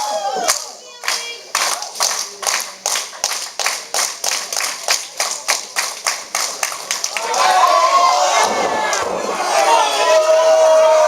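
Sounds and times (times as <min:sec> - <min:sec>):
audience clapping in unison: 0:00.4 - 0:07.8.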